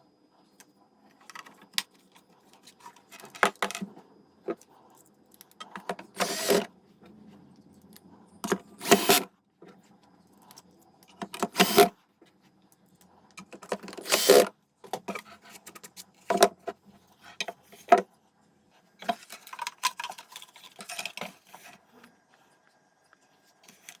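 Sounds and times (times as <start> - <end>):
clicks and clatter of tools: 19.0 - 21.8.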